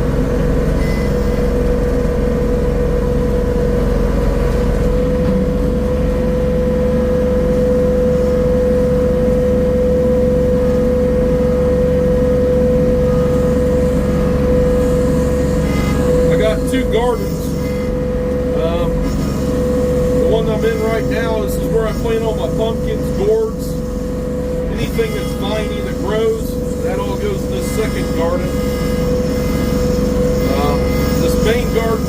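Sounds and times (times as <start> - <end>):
tiller engine running: 0.0 - 32.0.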